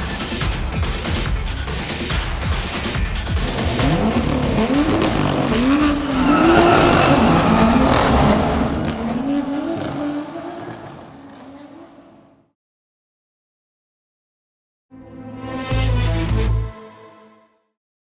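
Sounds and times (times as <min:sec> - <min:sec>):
car engine revving: 0:02.5 - 0:12.4.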